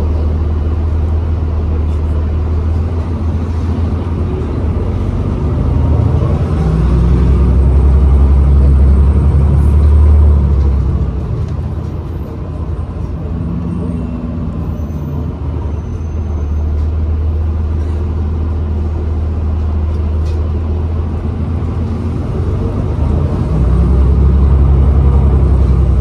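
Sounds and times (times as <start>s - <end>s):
bus drivetrain low rumble: 0.0s - 26.0s.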